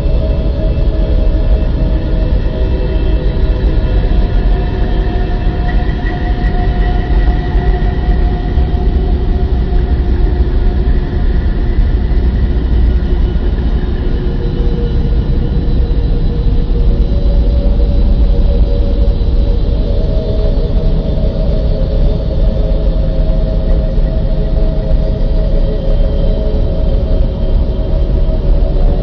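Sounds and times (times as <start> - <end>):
deep steady rumble: 0.0 - 29.0.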